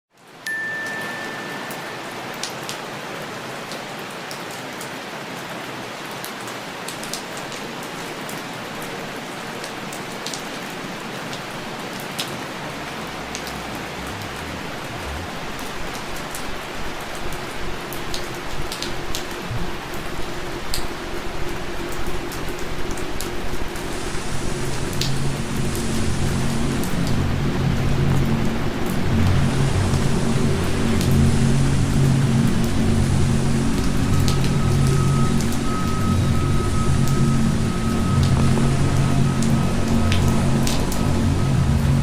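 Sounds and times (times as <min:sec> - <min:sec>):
rain falling: 0:00.2 - 0:42.0
low rumble: 0:12.2 - 0:16.6, 0:23.7 - 0:42.0.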